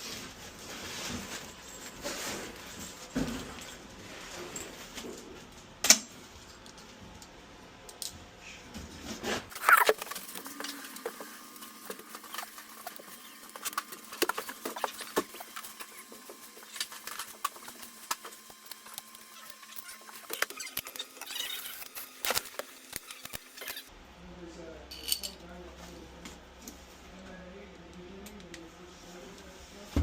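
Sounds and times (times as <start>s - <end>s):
hands handling small parts and tools: 9.5s - 23.8s.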